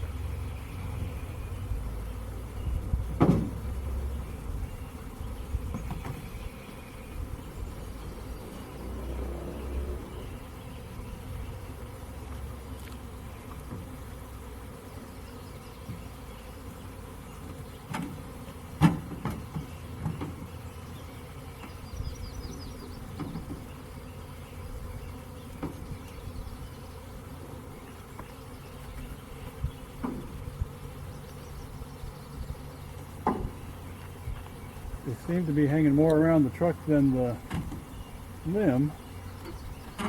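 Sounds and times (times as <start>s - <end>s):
bees buzzing: 0.0s - 40.0s
sharp knocks: 3.2s - 3.6s.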